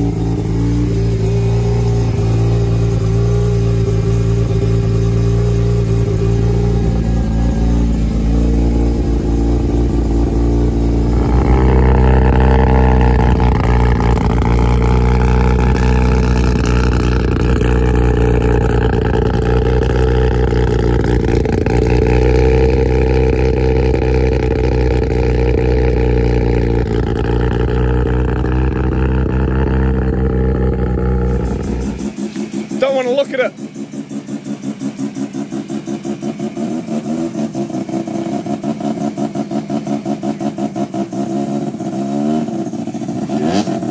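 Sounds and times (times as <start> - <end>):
car engine running: 0.0 - 43.9.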